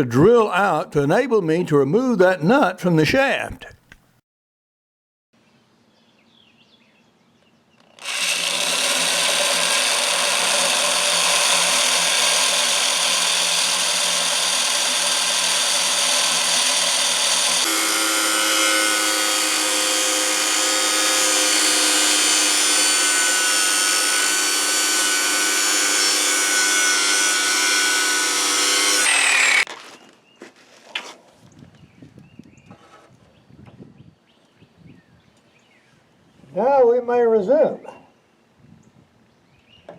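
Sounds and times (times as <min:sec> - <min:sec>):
electric drill boring metal: 0:07.9 - 0:29.7.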